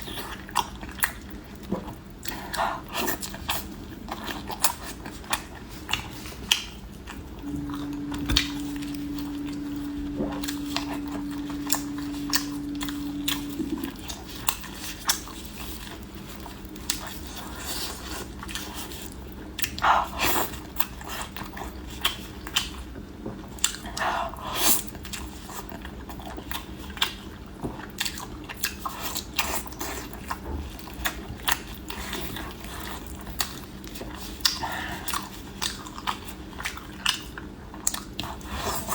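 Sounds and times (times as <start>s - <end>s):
biting and chewing: 0.0s - 24.0s, 24.6s - 38.9s
steady low hum: 0.0s - 26.6s.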